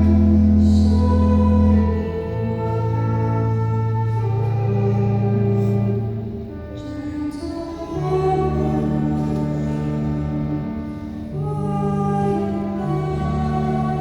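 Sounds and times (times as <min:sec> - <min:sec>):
person singing a hymn: 0:00.0 - 0:14.0.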